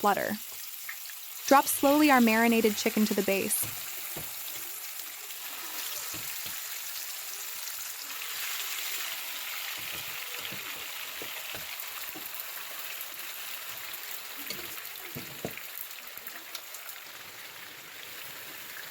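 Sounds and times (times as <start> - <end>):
chicken sizzling in hot oil: 0.0 - 18.9.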